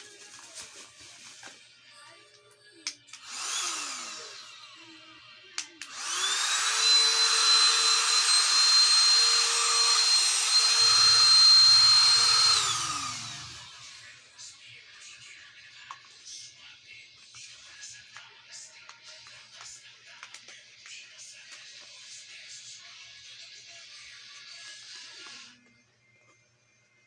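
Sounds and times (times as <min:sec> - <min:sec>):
vacuum cleaner motor whine: 0:03.2 - 0:05.1, 0:05.8 - 0:14.1.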